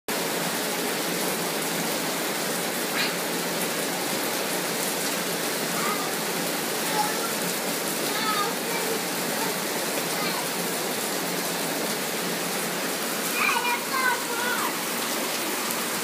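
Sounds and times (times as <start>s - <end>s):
rain falling on concrete: 0.1s - 16.0s.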